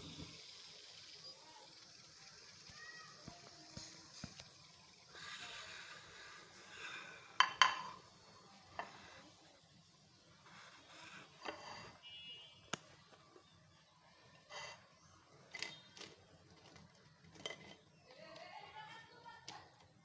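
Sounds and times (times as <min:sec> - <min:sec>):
dishes and utensils clinking: 0:07.4 - 0:08.1, 0:15.5 - 0:17.9.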